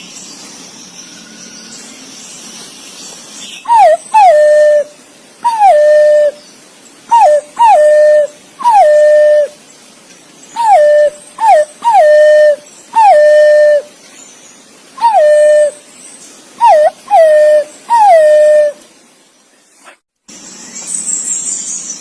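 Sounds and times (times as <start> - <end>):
green pigeon fluty whistles: 3.7 - 6.4, 7.1 - 9.5, 10.6 - 13.9, 15.0 - 15.8, 16.6 - 18.8.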